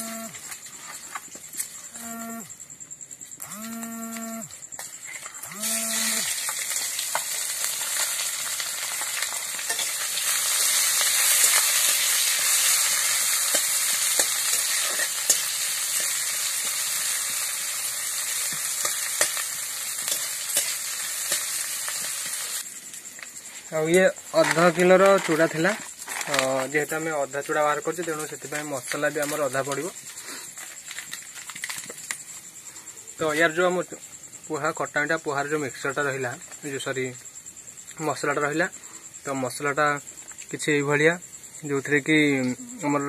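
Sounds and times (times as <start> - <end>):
onions sizzling in hot oil: 4.7 - 24.8, 25.4 - 32.5.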